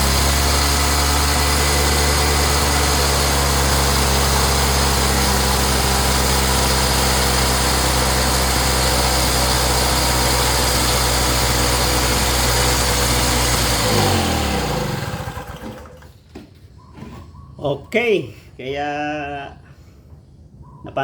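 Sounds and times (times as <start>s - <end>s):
generator engine running: 0.0s - 16.2s.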